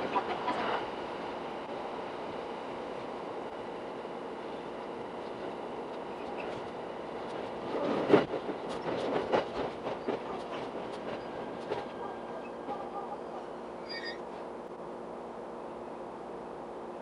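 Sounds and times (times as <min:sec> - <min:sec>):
train running rumble: 0:00.0 - 0:17.0
train wheels clicking over rail joints: 0:05.2 - 0:13.1.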